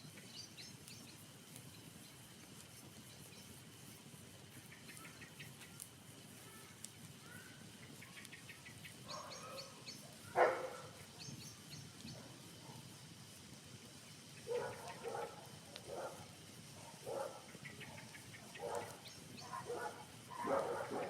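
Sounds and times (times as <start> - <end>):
birds chirping: 0.0 - 3.8, 4.5 - 5.9, 6.6 - 12.8, 13.9 - 21.0
dog barking: 9.1 - 11.0, 14.5 - 21.0.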